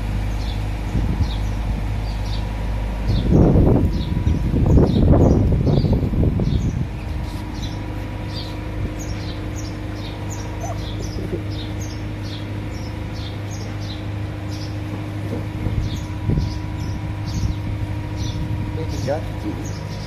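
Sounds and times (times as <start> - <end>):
low machine hum: 0.0 - 20.0
small bird chirping: 3.1 - 14.8.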